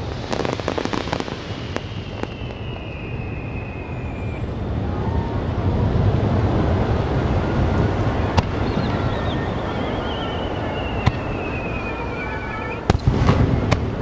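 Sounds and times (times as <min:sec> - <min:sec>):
firework sharp crack: 0:00.0 - 0:04.4, 0:08.3 - 0:09.8, 0:10.7 - 0:12.0, 0:12.9 - 0:14.0
whistling firework shell: 0:00.0 - 0:05.4, 0:07.8 - 0:14.0
fireworks rumbling bursts: 0:00.0 - 0:14.0.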